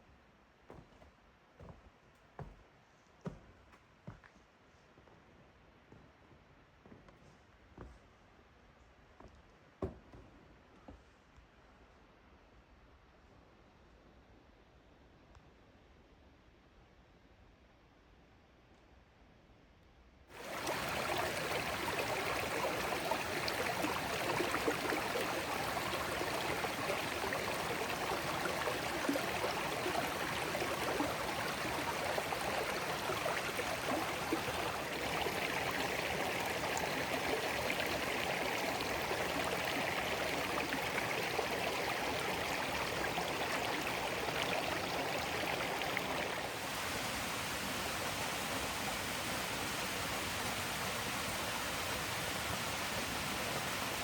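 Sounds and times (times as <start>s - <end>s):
running water rushing: 20.4s - 54.0s.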